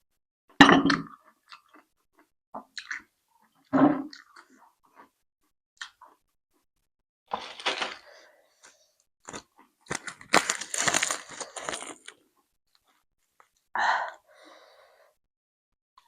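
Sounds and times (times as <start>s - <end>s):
crunchy chewing: 8.6s - 12.2s.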